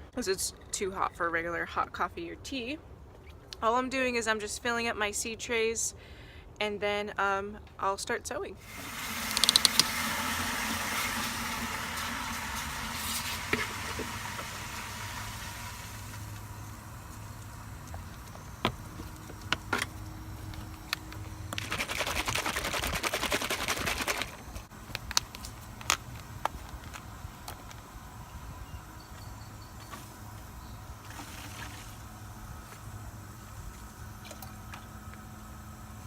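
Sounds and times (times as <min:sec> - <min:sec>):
hissing pour of soil: 0:08.6 - 0:17.8
sharp taps and clicks: 0:09.3 - 0:09.9
potting mix rustling and scraping: 0:16.0 - 0:28.0.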